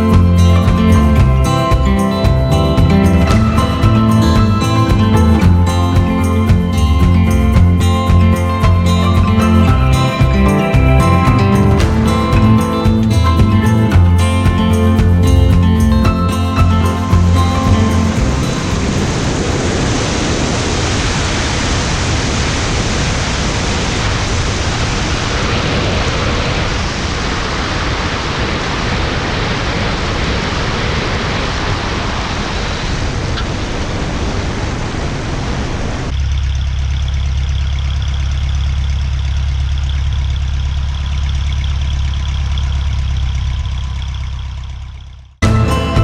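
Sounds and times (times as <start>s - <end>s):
airplane engine and propeller: 0.0s - 46.0s.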